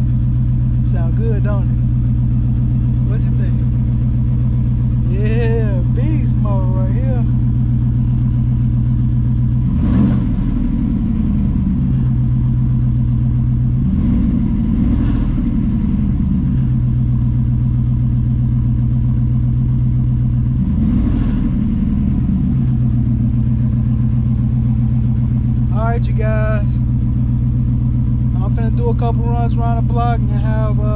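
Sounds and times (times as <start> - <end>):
car engine idling: 0.0 - 30.9
engine throttle blips: 0.0 - 30.9.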